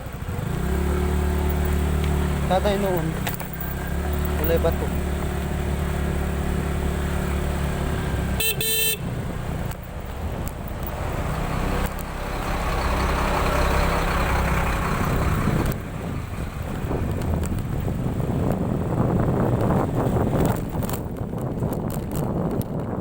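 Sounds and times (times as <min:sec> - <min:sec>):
scooter engine running: 0:00.0 - 0:23.0
horn beeping: 0:08.3 - 0:09.2.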